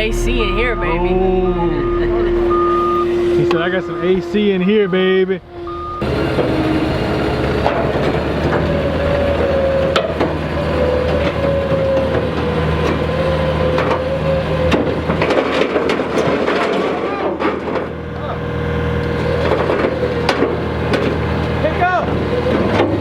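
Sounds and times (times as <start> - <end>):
whine dropping in pitch: 0.0 - 6.1
heavy truck engine running: 0.0 - 23.0
wood creaking and cracking: 7.5 - 18.2, 18.9 - 23.0.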